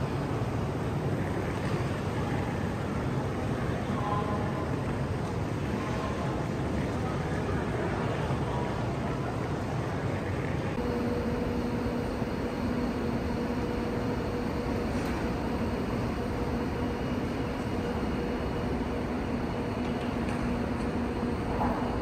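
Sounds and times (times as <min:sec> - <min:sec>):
electric train hum and hiss: 0:00.0 - 0:22.0
low steady drone: 0:10.0 - 0:22.0.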